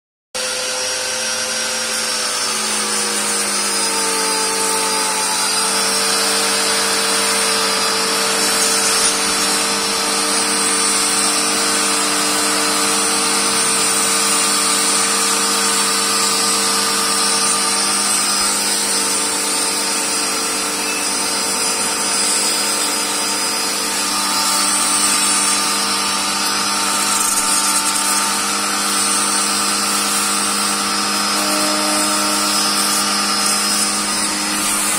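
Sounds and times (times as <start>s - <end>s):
small motor whining: 0.4s - 34.9s.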